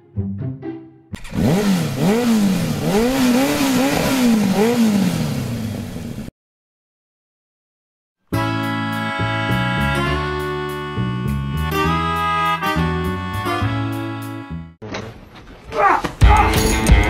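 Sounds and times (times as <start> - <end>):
motor revving up and down: 1.2 - 6.3.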